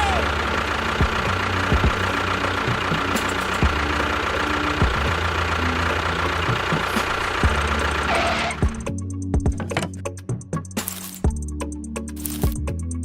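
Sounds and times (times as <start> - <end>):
small engine humming: 0.0 - 10.1.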